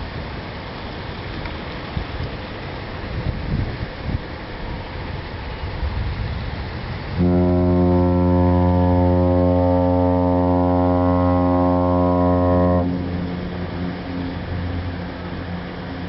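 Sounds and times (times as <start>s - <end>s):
ship's horn blast: 7.2s - 16.0s.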